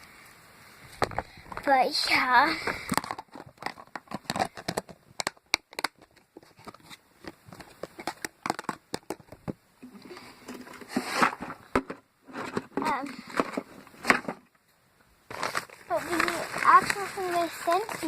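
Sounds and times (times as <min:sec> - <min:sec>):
putty foam crackling and clicking: 0:02.9 - 0:09.4.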